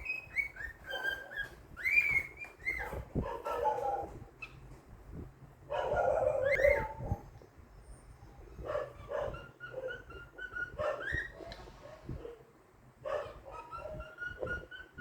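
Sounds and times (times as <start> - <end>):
cockatiel chattering and chirping: 0.0 - 3.0, 9.0 - 11.4.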